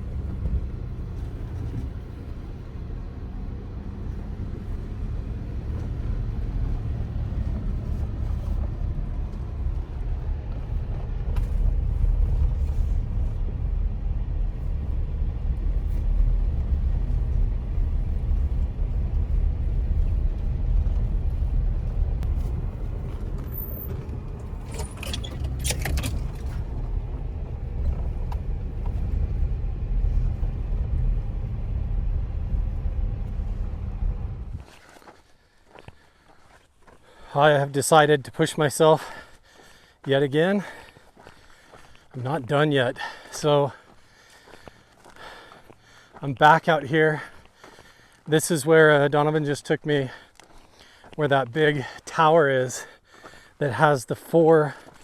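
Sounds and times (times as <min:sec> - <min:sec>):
vehicle engine and road rumble: 0:00.0 - 0:55.0
rattling: 0:19.2 - 0:29.4.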